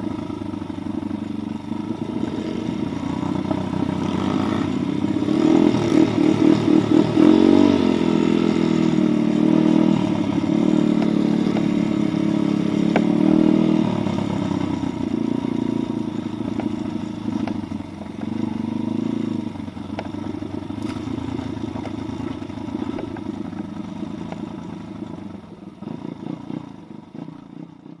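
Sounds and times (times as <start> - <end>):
motorbike engine revving: 0.0 - 27.6
clatter: 19.8 - 28.0.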